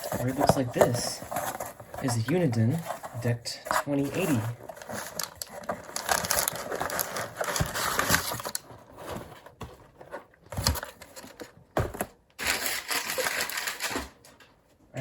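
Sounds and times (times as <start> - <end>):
cardboard packaging rustling: 0.0 - 14.2.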